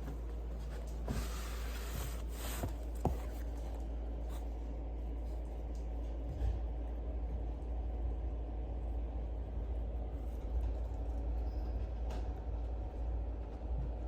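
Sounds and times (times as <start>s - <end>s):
steady low hum: 0.0s - 14.0s
rubbing and scraping: 1.1s - 3.6s.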